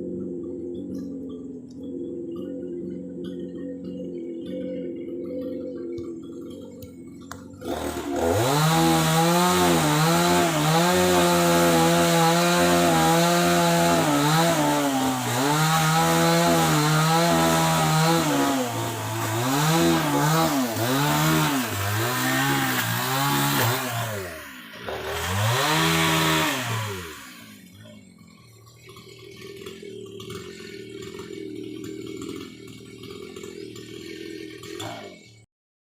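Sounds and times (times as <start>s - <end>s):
low hum: 0.0s - 8.6s
chainsaw cutting wood: 5.2s - 35.5s.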